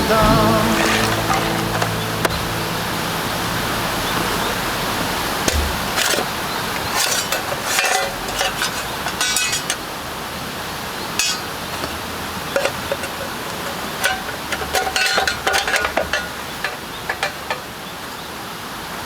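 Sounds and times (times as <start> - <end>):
cooking gear clinking: 0.0 - 2.7, 5.4 - 10.2, 10.9 - 18.0.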